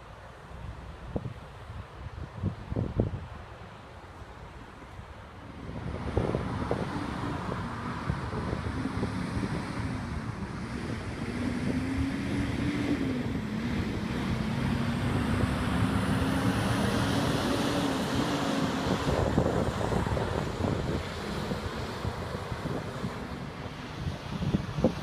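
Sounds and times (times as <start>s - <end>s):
wind buffeting microphone: 0.6s - 3.5s, 4.5s - 25.0s.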